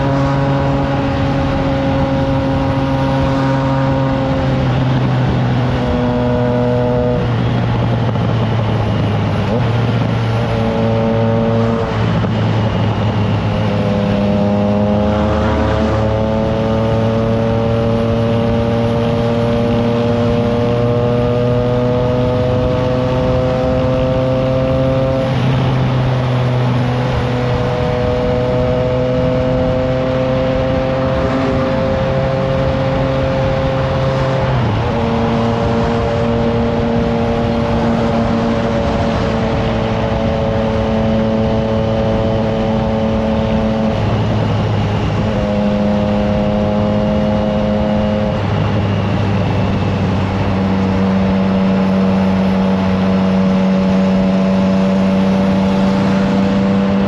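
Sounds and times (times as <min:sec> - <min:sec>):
wind on microphone: 0:00.0 - 0:57.0.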